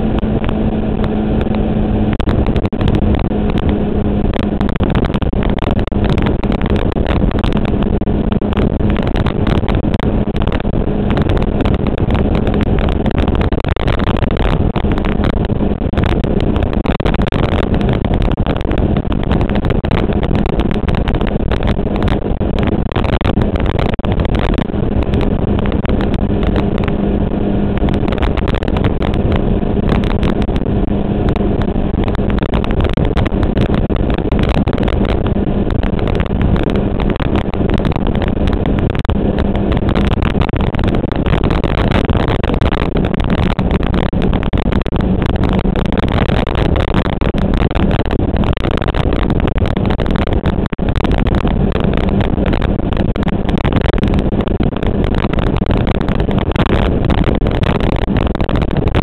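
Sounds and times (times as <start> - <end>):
motorcycle engine cruising: 0.0 - 59.0
wind rushing over microphone: 0.0 - 59.0.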